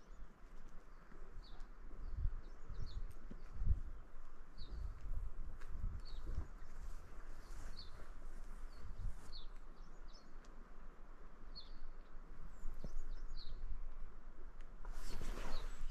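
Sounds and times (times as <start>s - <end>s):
bird chirping: 11.5s - 13.8s, 15.1s - 15.9s.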